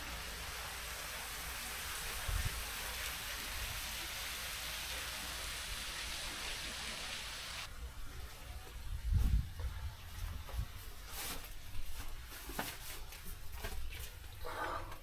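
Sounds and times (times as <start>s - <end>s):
rushing water: 0.0s - 7.7s.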